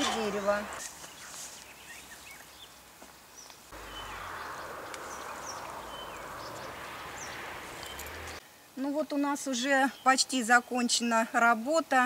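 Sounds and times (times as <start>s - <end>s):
small birds chirping: 0.0s - 8.4s, 9.2s - 11.3s.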